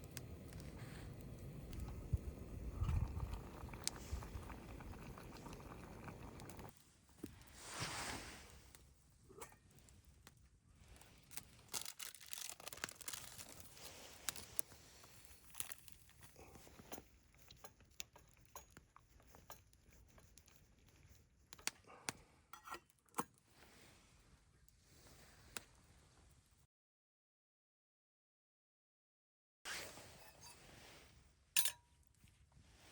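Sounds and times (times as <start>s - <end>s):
packaging crinkling and tearing: 11.1s - 14.8s.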